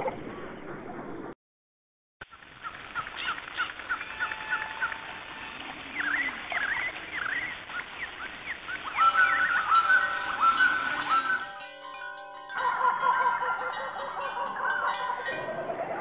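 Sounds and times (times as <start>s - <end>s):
small birds chirping: 2.2s - 11.6s.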